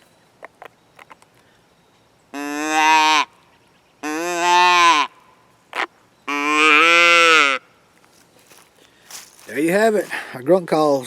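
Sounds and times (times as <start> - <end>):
deer call nasal bleats: 2.4 - 3.3, 4.0 - 7.7.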